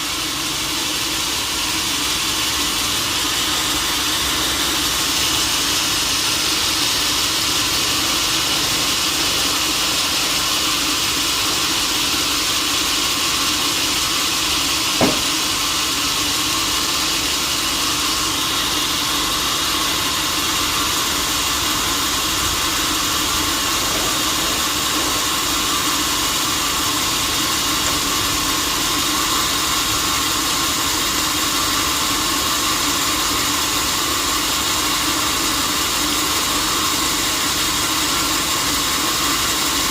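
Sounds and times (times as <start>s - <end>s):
sawmill machinery running: 0.0s - 39.9s
sharp knock: 15.0s - 15.5s.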